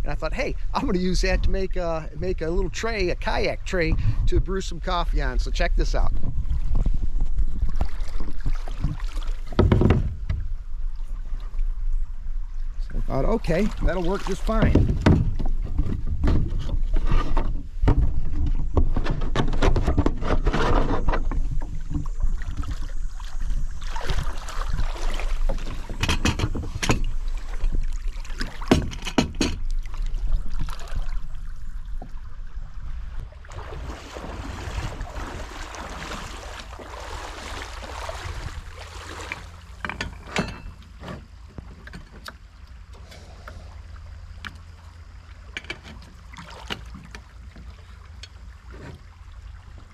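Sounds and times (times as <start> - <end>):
gear knocking on kayak: 13.4 - 22.8, 33.5 - 40.2.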